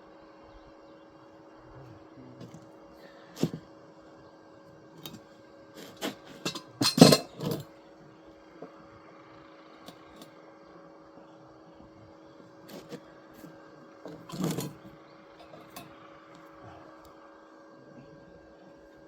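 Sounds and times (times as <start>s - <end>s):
faint hum: 0.0s - 19.0s
metal parts clinking: 5.8s - 7.6s, 14.1s - 14.8s, 15.4s - 15.9s.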